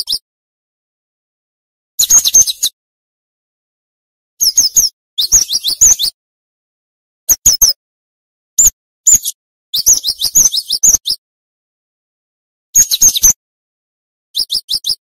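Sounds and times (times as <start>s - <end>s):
bird rapid high chirps: 0.0s - 0.2s, 2.0s - 2.8s, 4.4s - 6.2s, 7.3s - 7.8s, 8.6s - 11.2s, 12.8s - 13.4s, 14.4s - 15.0s.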